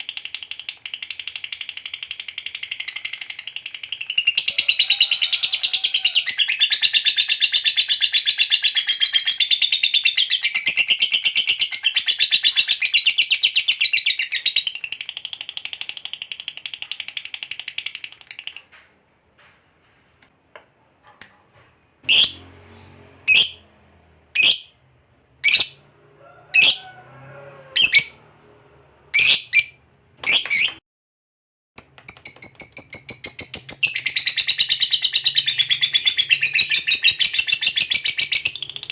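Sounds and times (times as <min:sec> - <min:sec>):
lovebird chattering: 0:22.1 - 0:22.4, 0:25.4 - 0:25.8.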